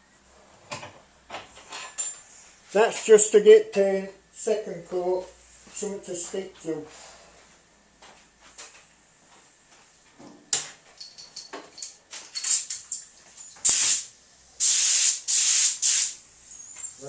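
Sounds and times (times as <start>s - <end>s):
paint spray gun hissing: 13.6s - 17.0s.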